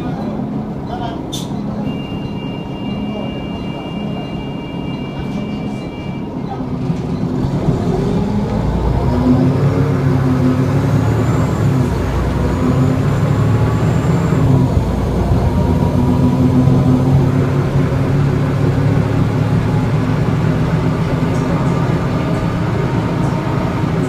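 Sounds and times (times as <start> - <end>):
bus diesel engine pulling away: 0.0 - 24.0
thin high electronic tones: 1.8 - 6.3.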